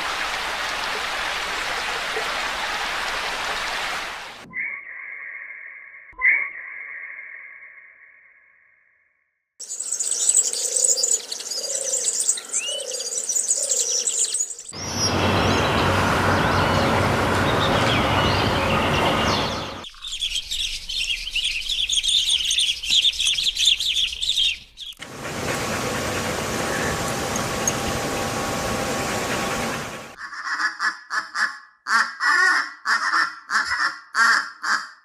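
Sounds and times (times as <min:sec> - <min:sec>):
birds chirping and twittering: 0:09.6 - 0:30.2.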